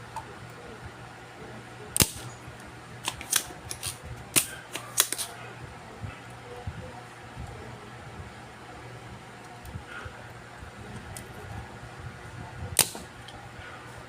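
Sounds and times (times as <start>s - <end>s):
steady low hum: 0.0s - 14.0s
hand tools clicking and snapping: 3.0s - 5.3s.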